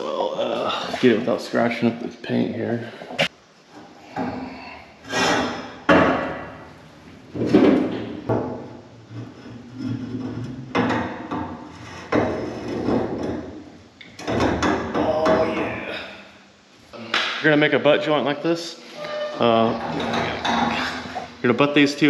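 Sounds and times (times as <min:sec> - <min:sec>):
metal knocks and clanks: 0:07.4 - 0:13.6, 0:19.0 - 0:21.3.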